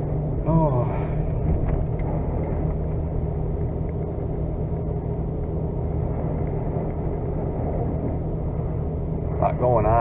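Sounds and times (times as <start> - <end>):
vehicle engine and road rumble: 0.0 - 10.0.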